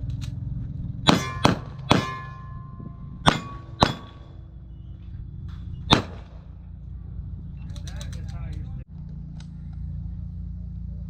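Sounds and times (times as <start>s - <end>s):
pistol shots: 1.0s - 2.5s, 3.2s - 4.4s, 5.9s - 6.5s
metallic clangs of steel targets: 1.0s - 4.5s.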